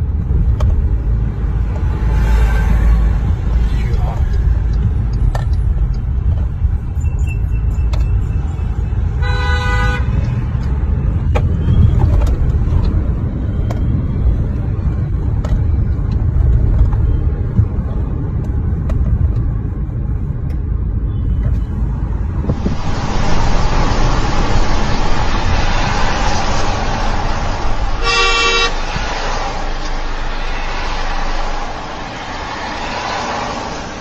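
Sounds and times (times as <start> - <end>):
car road and engine rumble: 0.0 - 34.0
car horn honk: 9.2 - 10.2, 28.0 - 29.0.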